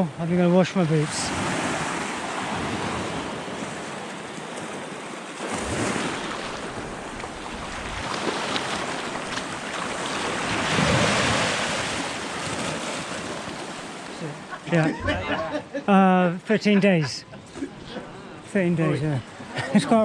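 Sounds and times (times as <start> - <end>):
sea waves washing onto shore: 0.0 - 14.7.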